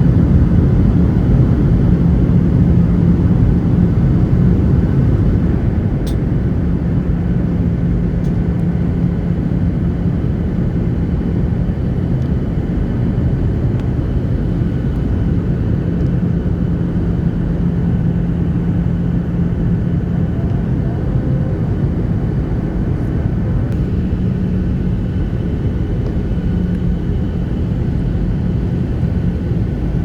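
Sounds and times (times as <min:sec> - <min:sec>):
airliner cabin rumble: 0:00.0 - 0:30.0
constant hum: 0:00.0 - 0:30.0.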